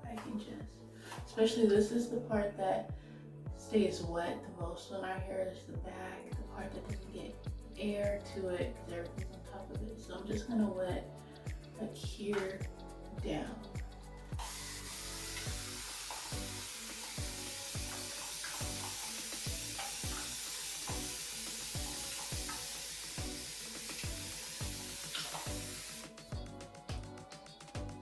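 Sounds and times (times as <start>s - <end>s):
background music with beat: 0.0s - 1.9s, 2.9s - 28.0s
spray bottle hissing: 14.4s - 26.2s.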